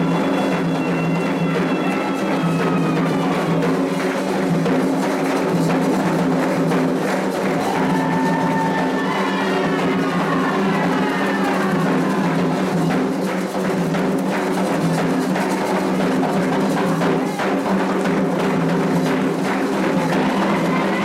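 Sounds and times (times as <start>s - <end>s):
hand drums playing: 0.0s - 21.0s
people singing: 7.6s - 13.1s, 19.7s - 21.0s.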